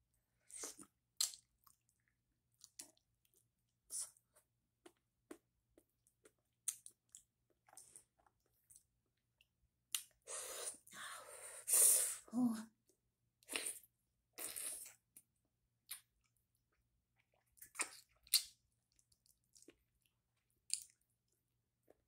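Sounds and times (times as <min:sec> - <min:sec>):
wet smacks and squishes: 0:00.7 - 0:01.8, 0:20.7 - 0:21.0.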